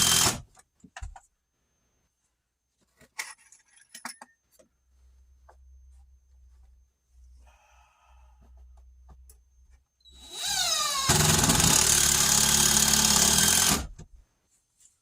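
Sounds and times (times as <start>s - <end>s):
power drill driving screw: 0.0s - 0.4s, 10.1s - 13.9s.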